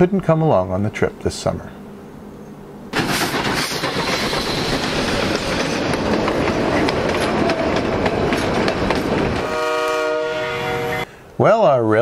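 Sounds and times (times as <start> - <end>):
train passing rumble: 0.7 - 11.1
wheels clacking over rail joints: 2.9 - 10.0.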